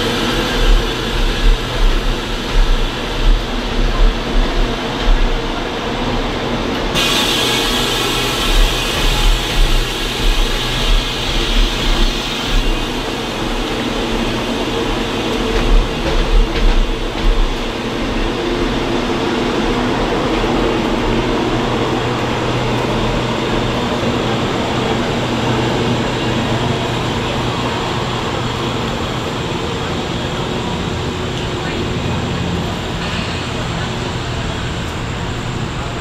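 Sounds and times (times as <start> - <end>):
train wheels thudding over rail joints: 0.0 - 19.9
train rumble with low hum: 0.0 - 36.0.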